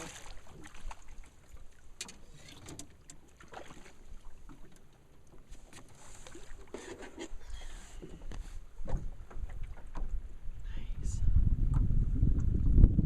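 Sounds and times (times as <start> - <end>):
low steady rumble: 10.1 - 13.0.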